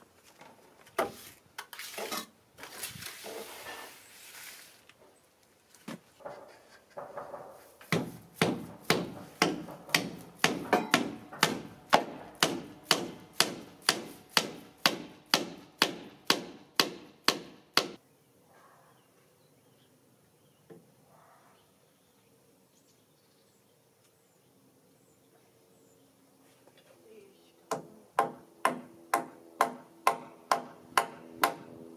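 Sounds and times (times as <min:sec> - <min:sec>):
hammer striking timber: 0:07.4 - 0:18.0, 0:27.7 - 0:31.7.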